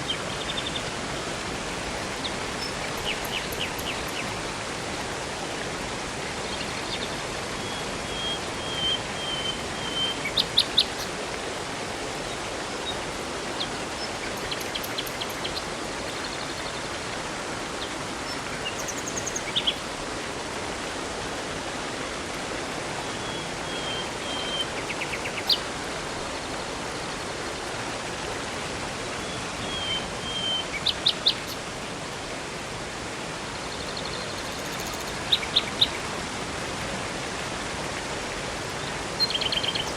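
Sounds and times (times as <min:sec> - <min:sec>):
river water rushing: 0:00.0 - 0:39.9
small birds chirping: 0:02.2 - 0:04.3, 0:06.5 - 0:11.2, 0:13.6 - 0:16.8, 0:17.8 - 0:19.8, 0:29.2 - 0:31.6, 0:33.7 - 0:36.0, 0:39.2 - 0:39.9.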